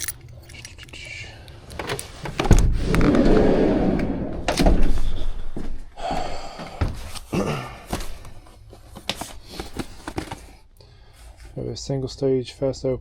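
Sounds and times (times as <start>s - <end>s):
rustling and handling noise: 6.8s - 11.6s.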